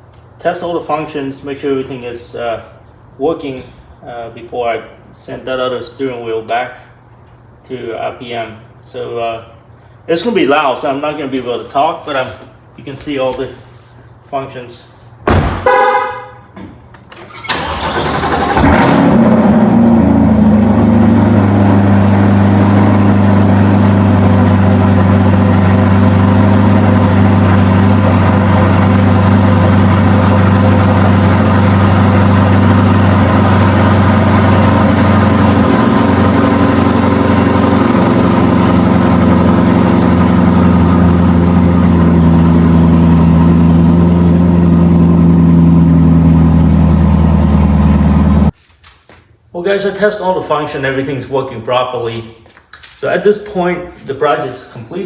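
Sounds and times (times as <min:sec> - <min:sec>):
car engine starting and idling: 0:17.0 - 0:48.5.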